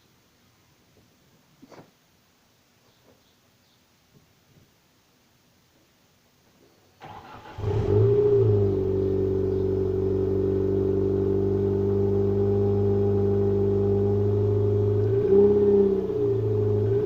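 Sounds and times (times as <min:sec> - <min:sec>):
car engine cranking: 0:07.0 - 0:10.4
car engine idling: 0:07.0 - 0:17.0.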